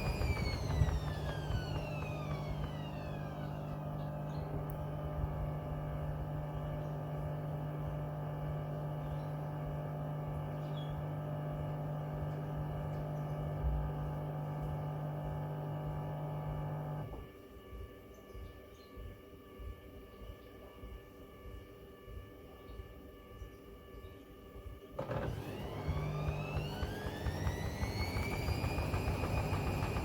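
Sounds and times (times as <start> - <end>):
washing machine motor hum: 0.0 - 17.3, 25.0 - 30.0.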